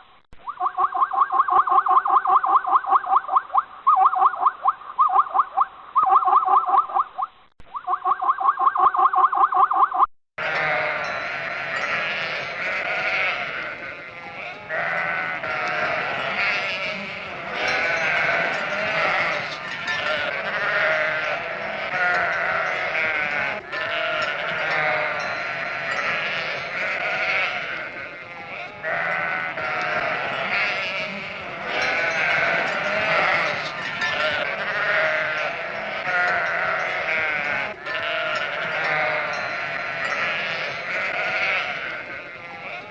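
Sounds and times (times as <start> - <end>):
sheep bleating: 10.4 - 42.9.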